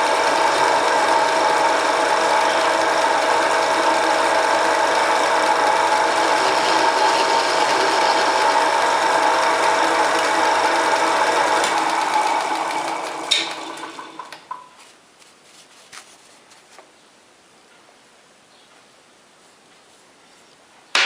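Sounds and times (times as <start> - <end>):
lathe motor running: 0.0 - 14.5
lathe knock and clicks stopping: 0.1 - 14.6.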